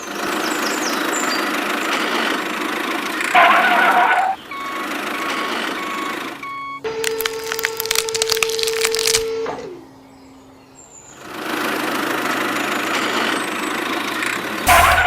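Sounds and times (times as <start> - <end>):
vehicle engine: 0.0 - 15.0
reversing alarm beeping: 3.0 - 7.1, 13.8 - 15.0
loud horn blast: 14.7 - 15.0.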